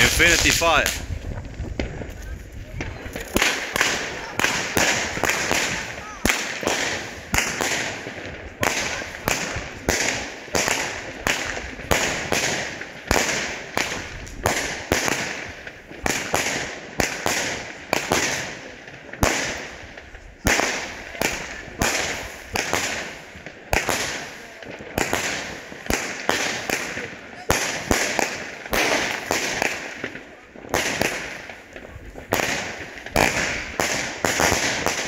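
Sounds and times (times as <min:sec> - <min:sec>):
fireworks bangs: 0:00.0 - 0:35.0
fireworks crackle: 0:00.0 - 0:35.0.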